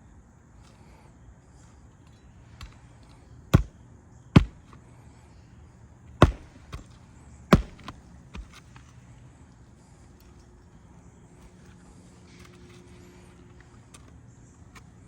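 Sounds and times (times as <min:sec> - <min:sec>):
hammer striking roofing nails: 0:03.6 - 0:03.8, 0:04.4 - 0:04.8, 0:06.2 - 0:08.6.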